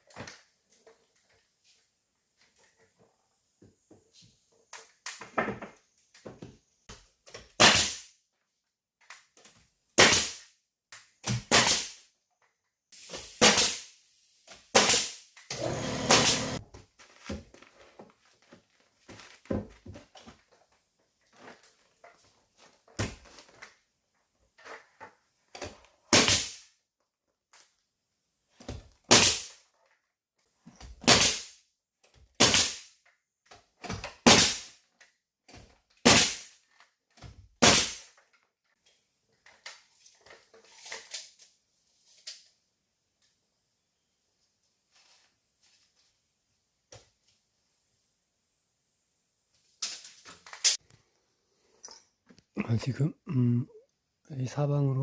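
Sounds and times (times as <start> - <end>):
nail gun firing: 7.6 - 8.0, 11.3 - 12.0, 13.0 - 16.6, 26.1 - 26.6, 32.4 - 32.8, 34.2 - 34.7, 36.0 - 36.5, 37.6 - 38.0
rough noise: 14.7 - 16.6.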